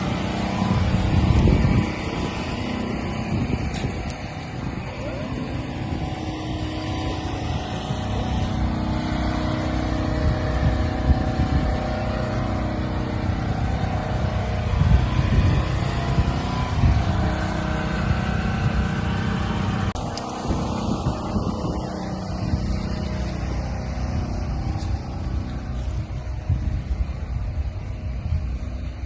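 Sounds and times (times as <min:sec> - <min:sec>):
car engines rumbling: 0:00.0 - 0:29.0.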